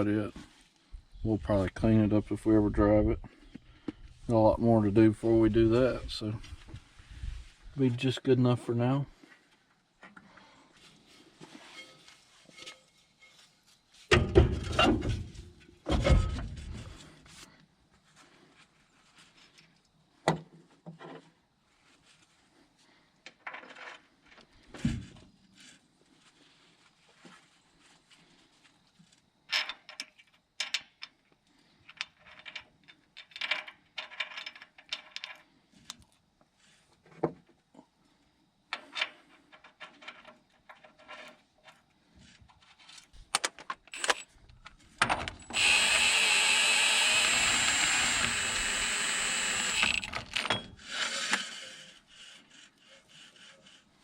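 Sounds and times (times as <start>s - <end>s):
metal tools clinking and scraping: 11.6s - 13.6s, 50.3s - 50.9s
power tool running: 45.4s - 52.4s.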